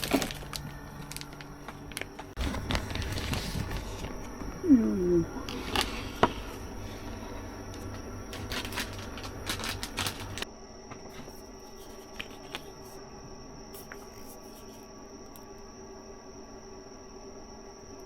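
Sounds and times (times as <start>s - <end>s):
small objects clicking and rustling: 0.0s - 4.3s, 7.7s - 10.4s
steady hum with high whine: 0.0s - 18.0s.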